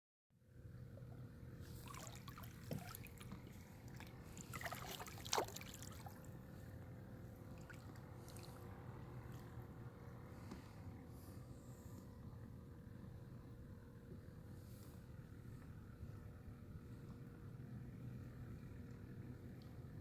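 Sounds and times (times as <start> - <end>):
water splashing against kayak: 1.7 - 6.3.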